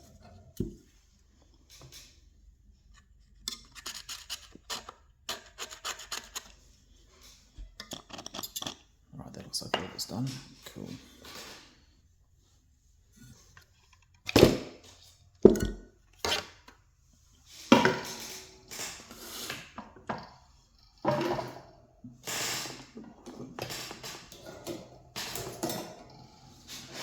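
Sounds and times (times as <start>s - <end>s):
knocks and clatters of tools: 7.2s - 11.8s, 13.2s - 16.8s, 17.6s - 27.0s.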